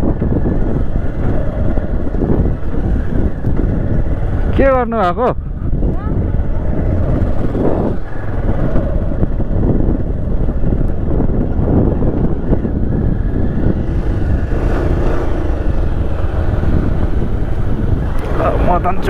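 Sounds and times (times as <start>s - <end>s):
low rumbling noise: 0.0s - 19.0s
motorcycle engine running: 0.0s - 19.0s.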